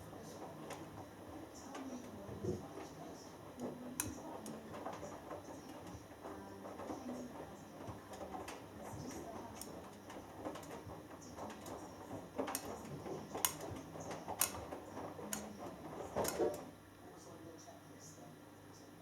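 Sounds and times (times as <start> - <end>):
clicks and knocks of tumbling load: 0.0 - 16.8
washing machine drum humming: 0.0 - 17.6.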